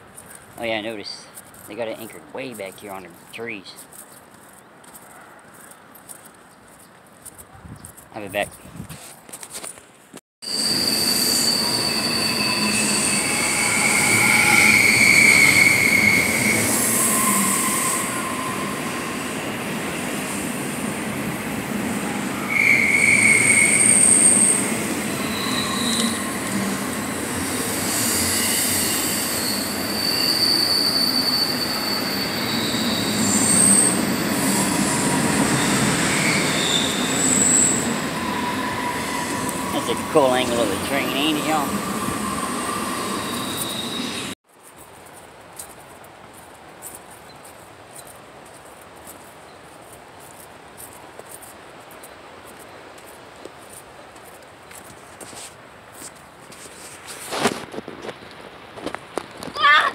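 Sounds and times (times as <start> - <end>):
train wheels squealing: 10.4 - 20.6, 21.6 - 44.4
train rail rumble: 10.4 - 44.4.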